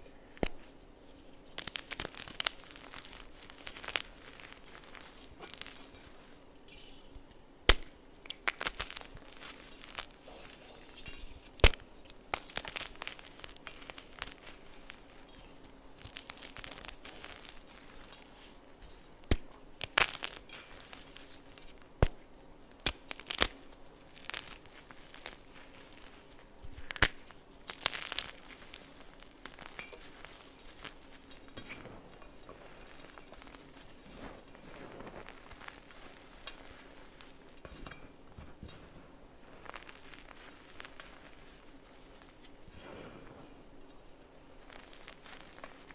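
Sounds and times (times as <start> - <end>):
chalk crumbling and crackling: 0.0 - 45.9
chalk snapping: 0.4 - 0.8, 7.7 - 10.1, 11.6 - 15.0, 19.2 - 23.6, 24.2 - 31.4.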